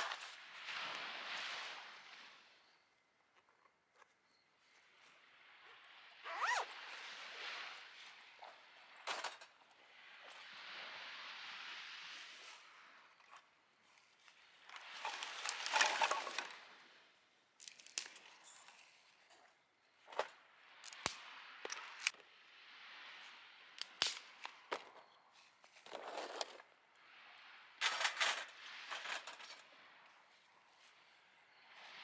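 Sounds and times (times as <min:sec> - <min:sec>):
sharp clicks and snaps: 0:17.6 - 0:18.2, 0:20.8 - 0:22.2, 0:23.8 - 0:24.2.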